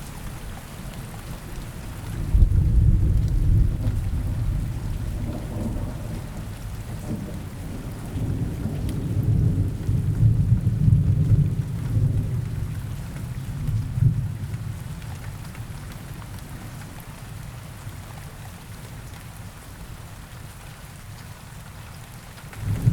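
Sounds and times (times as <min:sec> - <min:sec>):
steady rain: 0:00.0 - 0:22.9
rolling thunder: 0:02.2 - 0:12.4, 0:22.6 - 0:22.9.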